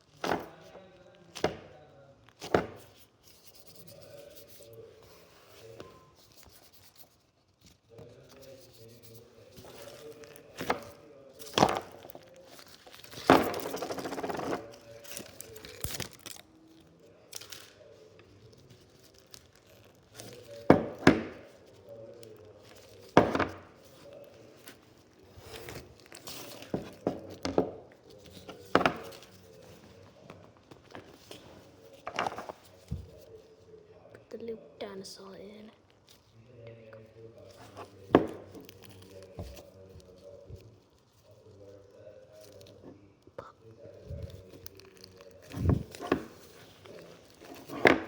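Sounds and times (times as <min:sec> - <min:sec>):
crinkling rustle: 0:02.2 - 0:20.7, 0:21.4 - 0:33.6, 0:37.3 - 0:48.0.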